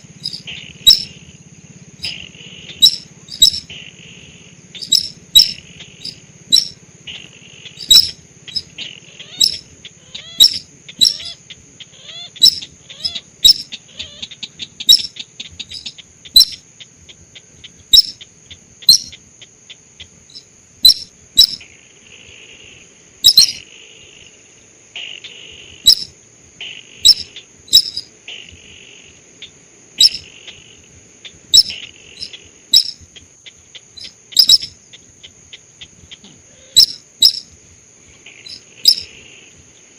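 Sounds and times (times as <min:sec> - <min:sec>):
steady high whine: 0:00.0 - 0:19.3
bird clicking call: 0:27.1 - 0:28.0, 0:31.6 - 0:34.8, 0:35.8 - 0:37.4, 0:38.4 - 0:39.1.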